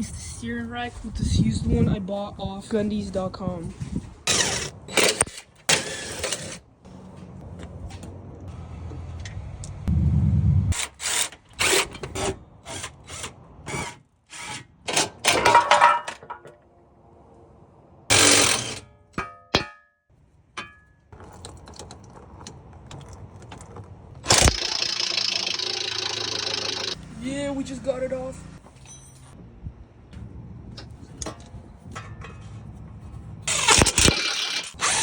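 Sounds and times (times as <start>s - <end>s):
low hum: 6.9s - 10.8s
metal tools clanking: 15.0s - 16.6s, 28.7s - 29.4s, 30.8s - 34.8s
short metallic ring: 28.8s - 29.4s.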